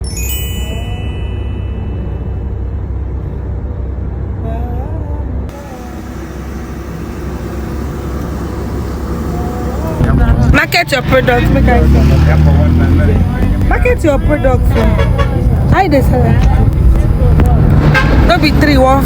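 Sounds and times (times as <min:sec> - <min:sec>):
truck engine and road rumble: 0:00.0 - 0:19.0.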